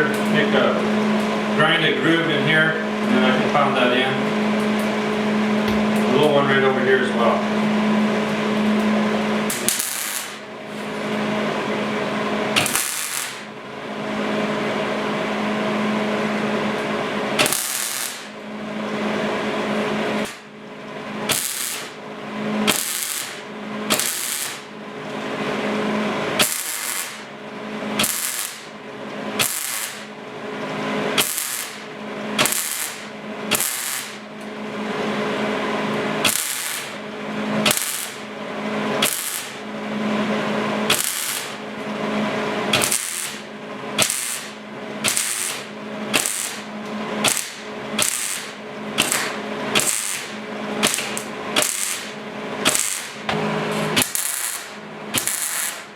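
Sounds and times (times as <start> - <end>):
steady low hum: 0.0 - 55.9
welder crackling: 7.9 - 11.3, 12.5 - 13.6, 17.4 - 18.4, 19.7 - 20.5, 21.2 - 25.2, 26.3 - 30.2, 31.0 - 34.5, 36.0 - 39.8, 40.8 - 42.0, 42.6 - 55.9.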